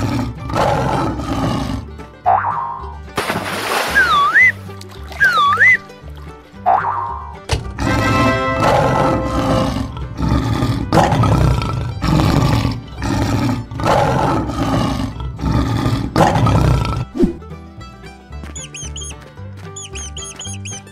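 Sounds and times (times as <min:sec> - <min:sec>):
lion roaring: 0:00.0 - 0:01.9, 0:07.8 - 0:17.2
background music: 0:00.0 - 0:20.9.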